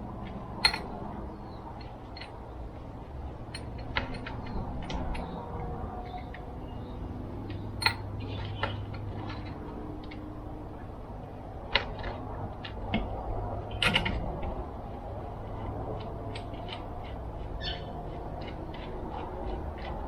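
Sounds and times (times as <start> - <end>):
steady low hum: 0.0 - 20.0
small metal parts and tools clicking: 0.2 - 1.0, 1.8 - 2.5, 3.5 - 6.6, 7.5 - 10.2.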